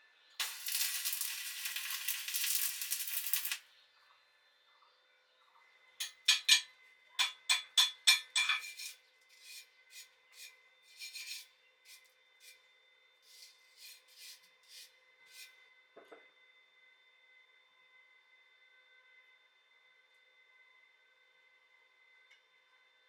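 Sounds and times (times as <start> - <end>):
hand strokes scraping steel: 8.6 - 12.6, 13.2 - 15.5.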